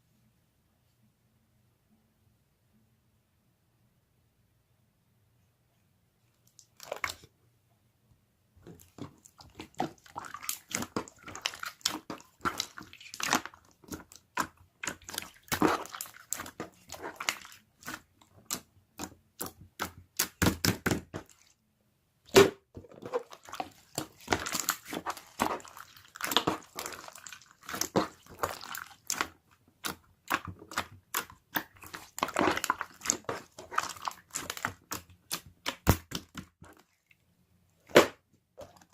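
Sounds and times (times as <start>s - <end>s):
crunching raw vegetables: 6.5s - 7.3s, 8.6s - 21.5s, 22.9s - 37.2s.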